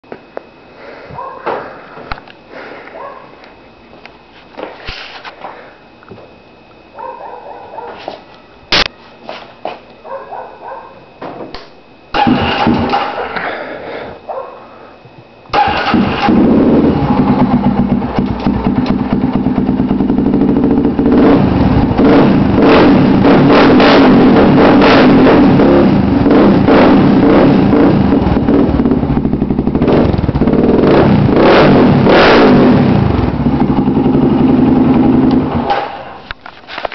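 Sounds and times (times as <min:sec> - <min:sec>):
atv engine idling and revving: 0:12.2 - 0:13.2, 0:15.6 - 0:36.1.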